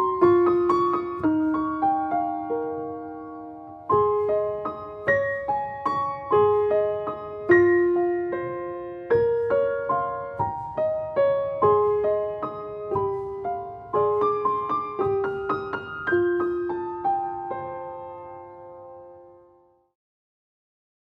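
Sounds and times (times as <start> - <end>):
gentle solo piano melody: 0.0 - 19.9.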